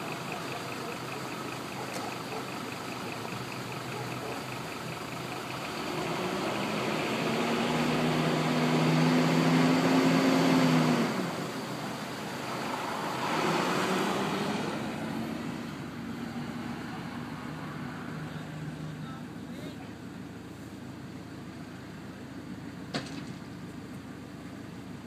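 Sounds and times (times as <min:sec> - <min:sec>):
fire engine driving past: 0:00.0 - 0:22.8
vehicle passing: 0:05.4 - 0:19.1.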